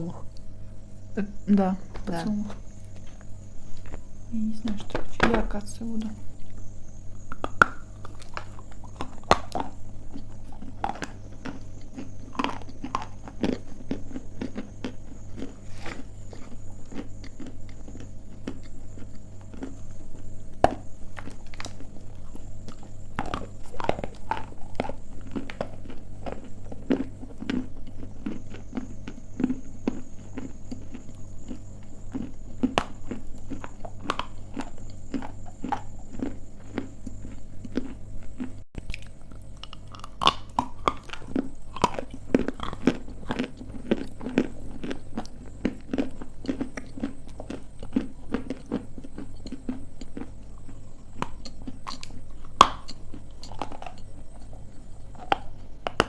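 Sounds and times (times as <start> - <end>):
crunching and chewing clay: 0.0 - 56.0.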